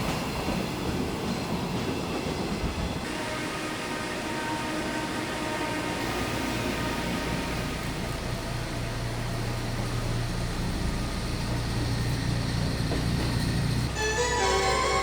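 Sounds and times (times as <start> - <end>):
train hum and rumble: 0.0 - 15.0
music: 13.9 - 15.0.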